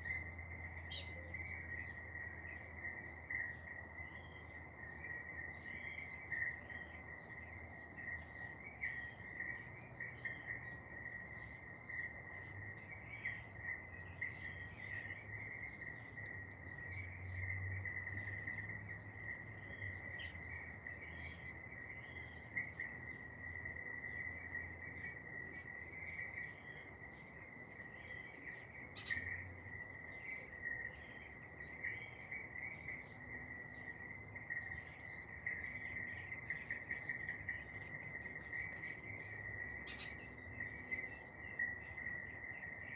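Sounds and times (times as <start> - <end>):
insects trilling: 0.0 - 42.9
bird chirps and calls: 36.0 - 41.6.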